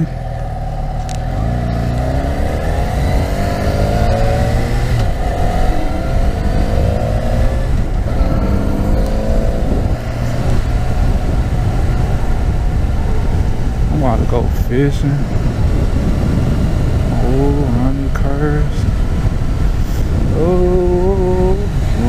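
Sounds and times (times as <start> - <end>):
motorcycle engine accelerating: 0.0 - 22.0
wind on microphone: 0.0 - 22.0.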